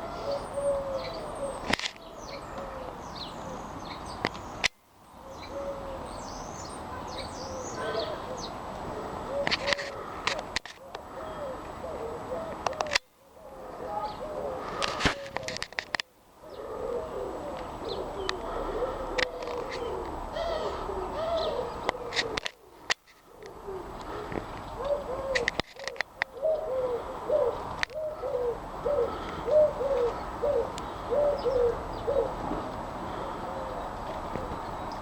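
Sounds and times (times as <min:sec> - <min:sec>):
pigeons cooing: 0:00.0 - 0:04.2, 0:05.2 - 0:35.0
small birds chirping: 0:00.0 - 0:08.6, 0:17.8 - 0:28.2, 0:29.0 - 0:35.0.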